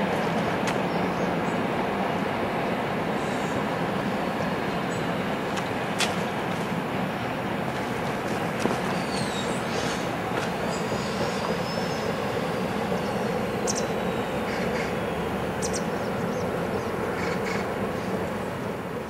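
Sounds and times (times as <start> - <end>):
train wheels rumbling on rails: 0.0 - 19.0
high wheel squeals: 8.8 - 18.5.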